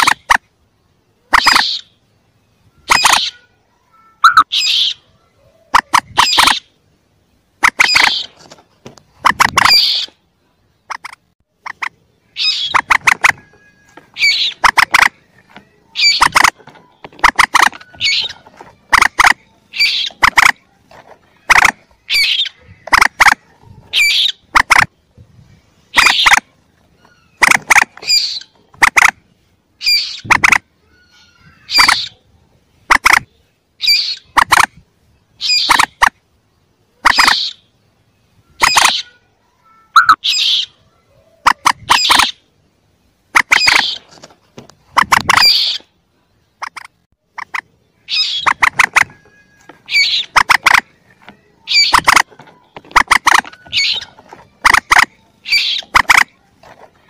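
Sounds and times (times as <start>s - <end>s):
sharp moorhen calls: 1.2s - 3.5s, 4.2s - 6.8s, 7.6s - 8.4s, 9.1s - 10.2s, 10.8s - 20.6s, 21.4s - 25.0s, 25.8s - 32.2s, 32.8s - 34.7s, 35.3s - 36.1s, 37.0s - 37.8s, 38.4s - 39.2s, 39.9s - 40.8s, 41.4s - 42.5s, 43.4s - 44.1s, 44.9s - 45.9s, 46.6s - 56.4s.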